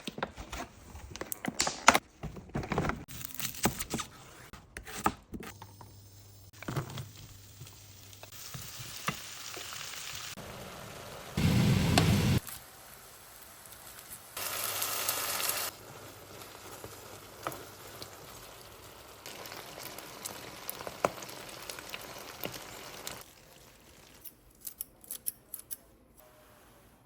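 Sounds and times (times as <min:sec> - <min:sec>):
hiss: 0:11.4 - 0:12.5.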